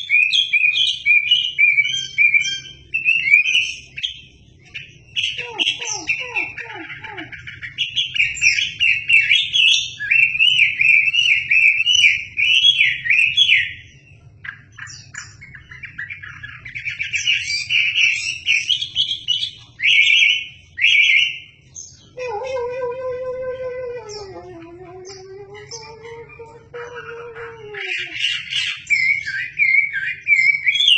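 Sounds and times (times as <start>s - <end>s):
songbird singing fast chattering phrases: 0.0s - 22.6s, 24.0s - 30.9s
low steady pitched tone: 22.2s - 28.2s.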